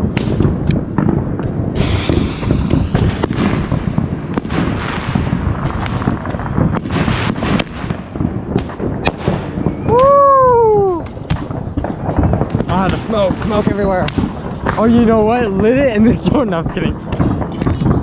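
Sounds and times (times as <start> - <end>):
fireworks crackling and popping: 1.7 - 18.0
firework hiss: 1.8 - 8.4.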